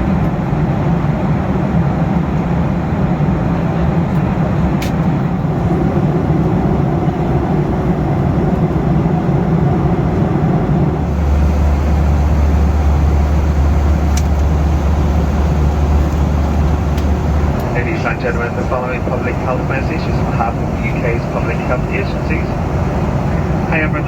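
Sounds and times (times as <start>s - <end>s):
airplane cabin roar: 0.0s - 24.0s
deep low hum: 11.0s - 23.7s.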